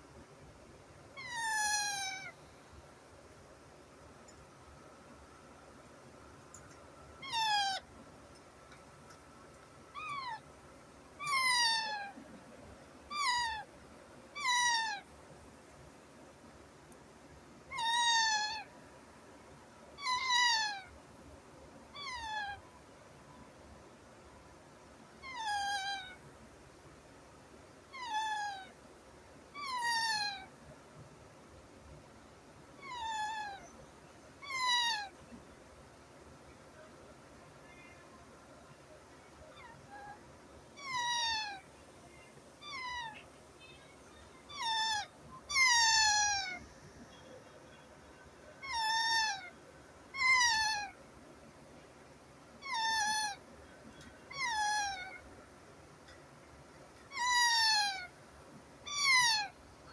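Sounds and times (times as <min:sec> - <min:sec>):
baby parrot calling: 0:01.2 - 0:02.3, 0:07.2 - 0:07.8, 0:10.0 - 0:10.4, 0:11.2 - 0:12.2, 0:13.1 - 0:13.7, 0:14.4 - 0:15.1, 0:17.7 - 0:18.7, 0:20.0 - 0:20.9, 0:22.0 - 0:22.6, 0:25.2 - 0:26.2, 0:29.6 - 0:30.5, 0:32.8 - 0:33.6, 0:34.4 - 0:35.2, 0:40.8 - 0:41.7, 0:42.6 - 0:43.3, 0:44.5 - 0:46.6, 0:48.6 - 0:49.5, 0:50.1 - 0:51.0, 0:52.6 - 0:53.4, 0:54.3 - 0:55.2, 0:57.1 - 0:58.1, 0:58.9 - 0:59.6
animal meow-like cries: 0:01.2 - 0:02.4, 0:07.2 - 0:07.9, 0:09.9 - 0:10.5, 0:11.2 - 0:12.2, 0:13.1 - 0:13.7, 0:14.4 - 0:15.1, 0:17.7 - 0:18.7, 0:20.0 - 0:21.0, 0:21.9 - 0:22.7, 0:25.2 - 0:26.2, 0:27.9 - 0:28.8, 0:29.6 - 0:30.5, 0:32.8 - 0:33.7, 0:34.4 - 0:35.2, 0:39.5 - 0:40.2, 0:40.8 - 0:41.7, 0:42.6 - 0:43.3, 0:44.5 - 0:46.6, 0:48.6 - 0:51.0, 0:52.6 - 0:53.4, 0:54.3 - 0:55.2, 0:57.1 - 0:58.1, 0:58.8 - 0:59.6.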